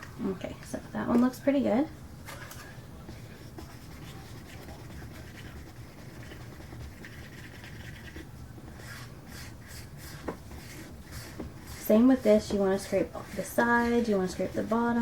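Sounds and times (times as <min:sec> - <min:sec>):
low steady hum: 0:00.0 - 0:15.0
stir stick scraping a cup: 0:03.4 - 0:15.0.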